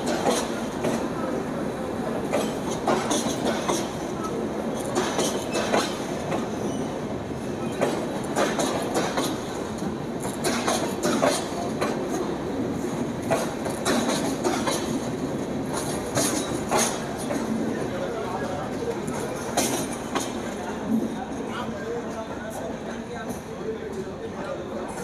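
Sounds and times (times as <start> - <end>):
sharp clacks over rail joints: 0.0 - 1.1, 2.3 - 4.0, 4.8 - 6.5, 7.7 - 12.3, 13.2 - 15.1, 15.7 - 17.6, 19.4 - 20.5.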